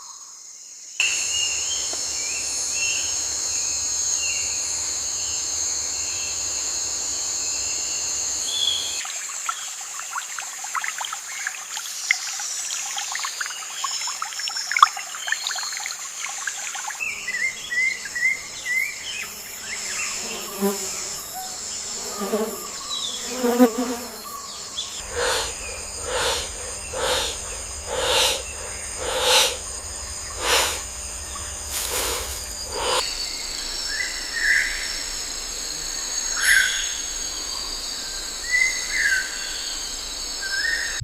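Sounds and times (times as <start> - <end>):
high insect chorus: 0.0 - 41.0
bird chirps: 24.3 - 33.4.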